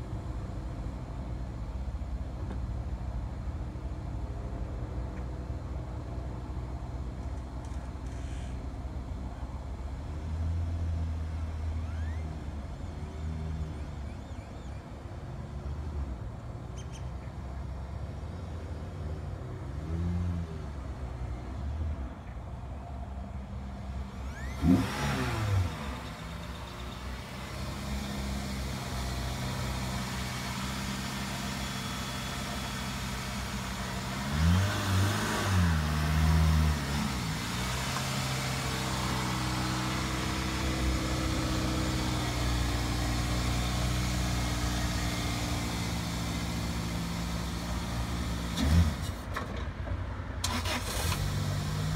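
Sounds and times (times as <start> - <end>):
car engine revving and idling: 23.4 - 49.4, 50.4 - 51.9.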